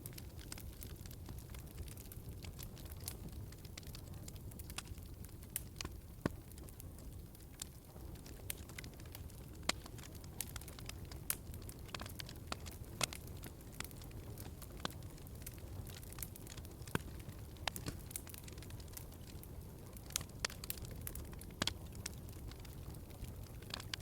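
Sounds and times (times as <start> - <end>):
fireplace wood fire crackling: 0.0 - 24.0.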